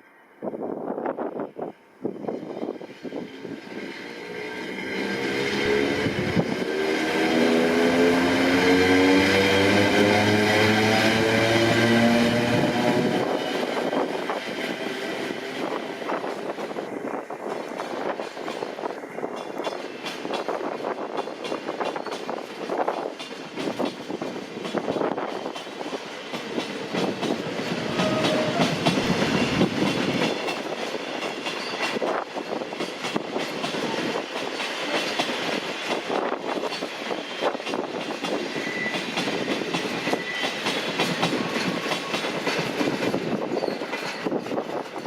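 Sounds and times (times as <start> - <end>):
train wheels clattering over rail joints: 11.2 - 45.0.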